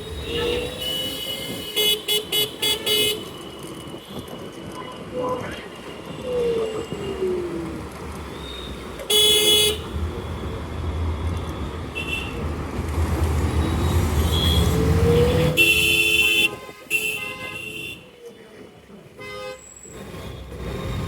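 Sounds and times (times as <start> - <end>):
wind and road noise: 0.0 - 21.0
vehicle horns honking: 0.1 - 4.4, 9.0 - 9.9, 11.9 - 12.6, 14.0 - 18.1, 19.2 - 19.8
passing vehicle rumble: 9.8 - 15.7.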